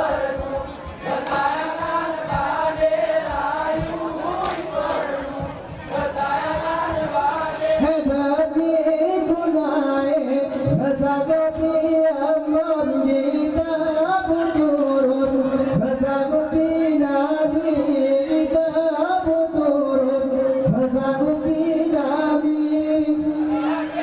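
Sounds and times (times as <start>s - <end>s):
men singing a chant in unison: 0.0s - 24.0s
quick hand claps and body slaps: 1.2s - 2.0s, 4.0s - 5.3s.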